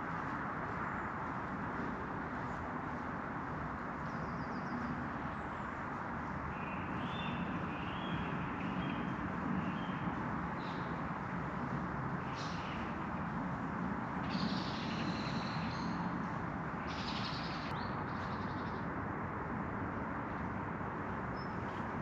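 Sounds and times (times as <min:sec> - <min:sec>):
small birds chirping: 0:12.2 - 0:13.1, 0:14.2 - 0:18.9.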